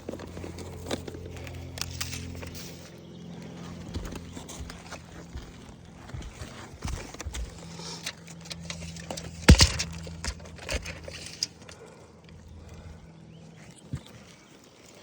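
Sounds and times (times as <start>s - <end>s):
steady low hum: 0.0s - 15.0s
tools tapping and scraping shingles: 3.7s - 12.0s.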